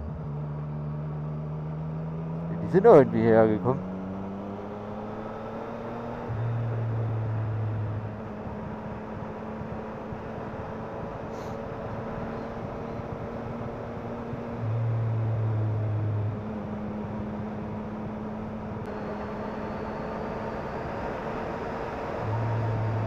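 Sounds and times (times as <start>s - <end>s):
motorcycle engine cruising: 0.0s - 23.0s
wind and road noise: 0.0s - 23.0s.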